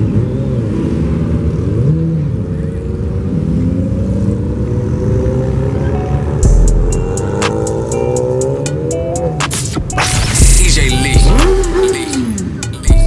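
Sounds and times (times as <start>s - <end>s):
car engine revving: 0.0s - 13.0s
music with deep bass hit: 6.4s - 7.8s, 9.4s - 13.0s.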